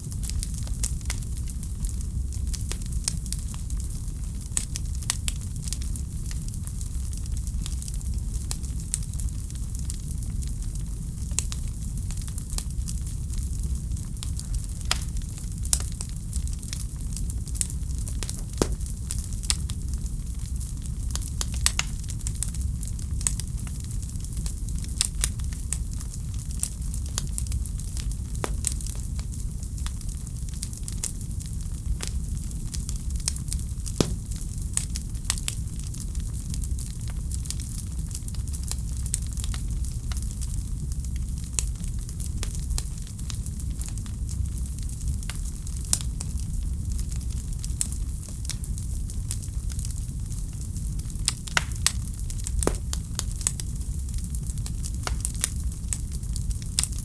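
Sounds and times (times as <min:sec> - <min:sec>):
wood fire crackling: 0:00.0 - 0:13.1, 0:14.0 - 0:40.5, 0:41.4 - 0:57.0
sharp pops of fire: 0:18.0 - 0:19.9, 0:28.0 - 0:29.4, 0:32.7 - 0:35.6, 0:51.3 - 0:55.6.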